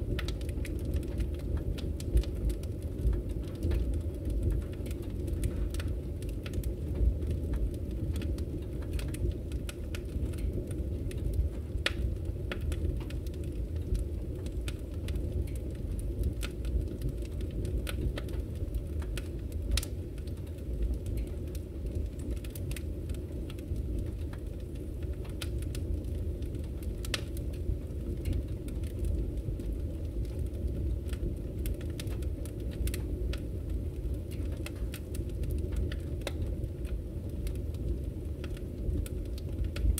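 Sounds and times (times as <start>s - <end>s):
fire flames rumbling: 0.0s - 39.9s
wood fire pops and snaps: 0.0s - 39.9s.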